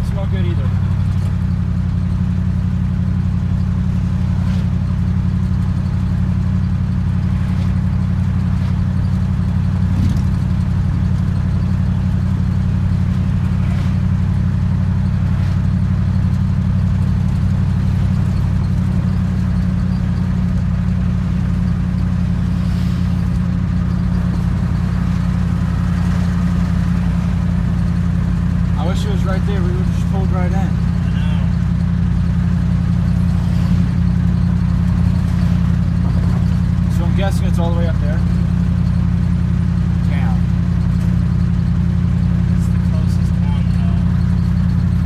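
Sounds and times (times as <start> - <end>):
truck engine and road drone: 0.0 - 45.0.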